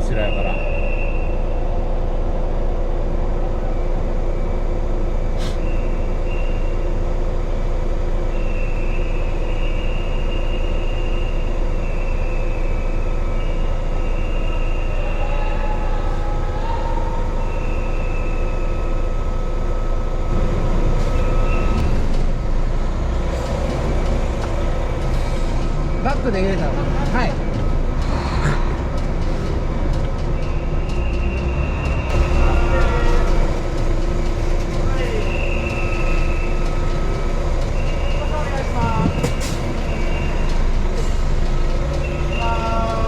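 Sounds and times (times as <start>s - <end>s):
high whistling tones: 0.0s - 2.1s, 3.5s - 7.0s, 8.2s - 22.1s, 30.2s - 43.0s
truck diesel engine running: 0.0s - 43.0s.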